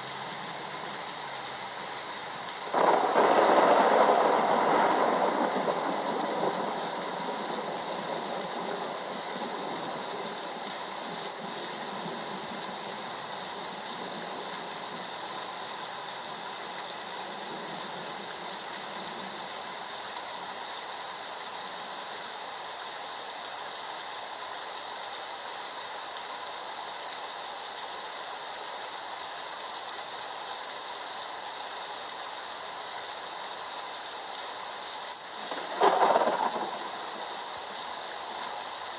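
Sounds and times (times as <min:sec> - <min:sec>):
heavy rain hissing: 0:00.0 - 0:38.9
thunder roll: 0:02.7 - 0:13.1, 0:35.3 - 0:38.9.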